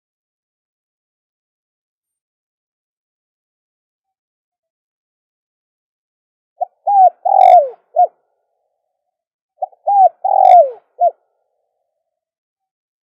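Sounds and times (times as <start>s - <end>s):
dove cooing: 6.6s - 8.2s, 9.6s - 11.2s.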